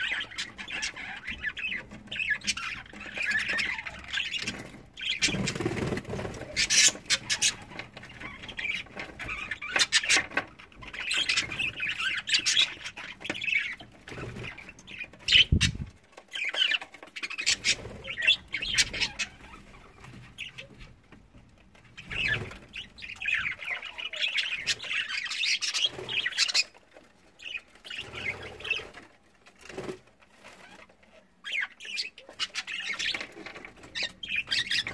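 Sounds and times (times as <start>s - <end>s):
budgerigars chattering and squawking: 0.0s - 21.1s, 21.8s - 26.8s, 27.4s - 29.0s, 30.5s - 34.9s
wings flapping: 4.4s - 7.7s.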